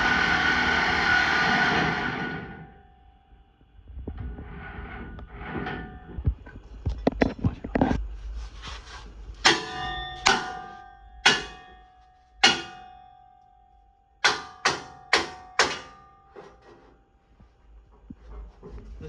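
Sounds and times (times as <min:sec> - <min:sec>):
hammer strikes on metal: 0:09.4 - 0:13.4, 0:14.2 - 0:16.8.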